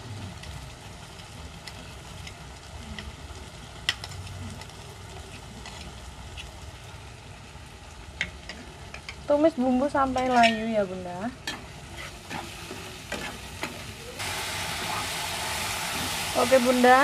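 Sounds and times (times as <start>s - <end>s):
paste sizzling in hot oil: 8.3s - 17.0s.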